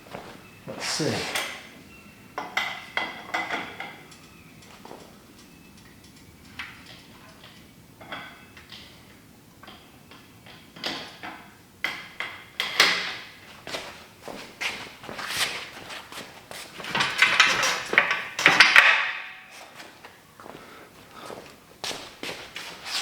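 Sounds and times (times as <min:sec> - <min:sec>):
metal clanks and knocks: 0:16.8 - 0:19.5.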